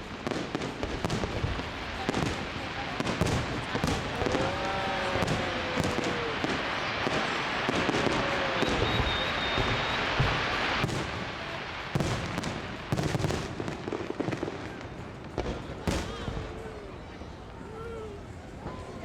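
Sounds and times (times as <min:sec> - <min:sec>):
firework bangs: 0:00.0 - 0:16.6
fireworks exploding: 0:00.0 - 0:19.0
faint high whistle: 0:05.8 - 0:10.7.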